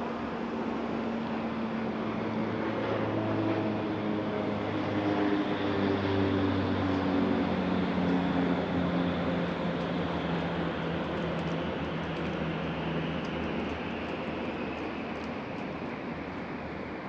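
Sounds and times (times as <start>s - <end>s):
passing engine hum: 0.0s - 17.0s
steady background rush: 7.4s - 17.0s.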